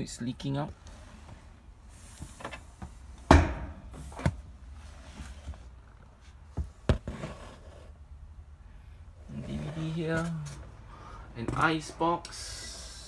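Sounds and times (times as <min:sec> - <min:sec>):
knocks and thumps: 0:03.3 - 0:04.4.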